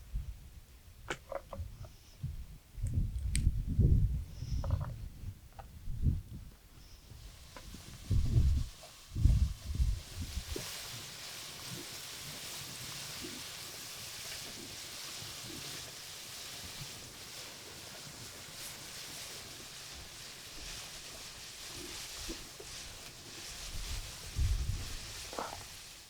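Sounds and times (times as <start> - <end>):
food sizzling in hot oil: 7.1 - 26.0.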